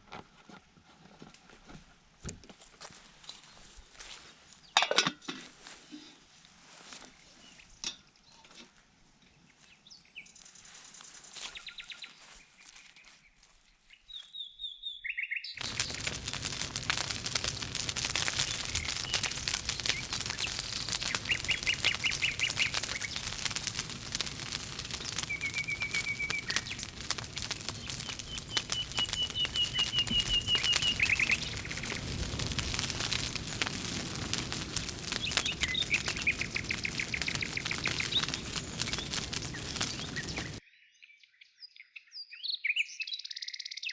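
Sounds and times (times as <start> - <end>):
birds chirping: 14.4 - 40.6
campfire crackling: 15.6 - 40.6.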